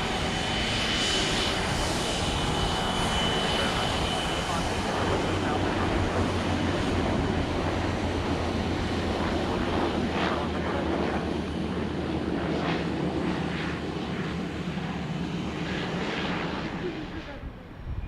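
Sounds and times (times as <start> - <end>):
airplane engine noise: 0.0 - 18.0.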